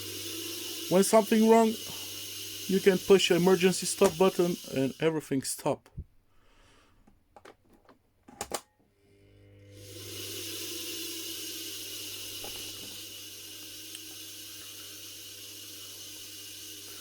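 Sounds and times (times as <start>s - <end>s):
electric motor running with hiss and hum: 0.0s - 5.0s, 9.4s - 17.0s.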